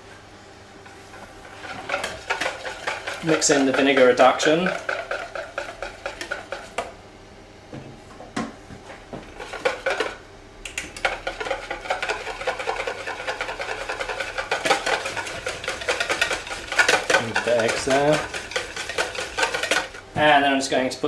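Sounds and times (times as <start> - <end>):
whisk beating in a bowl: 0.9 - 7.0, 9.2 - 20.1
whisk clinking: 1.5 - 6.9, 9.4 - 10.2, 11.0 - 20.0.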